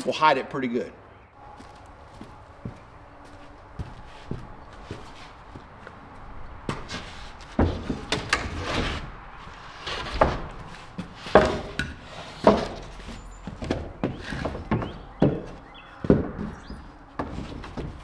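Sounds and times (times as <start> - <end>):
wooden boards knocking: 6.6 - 9.0, 9.9 - 18.0.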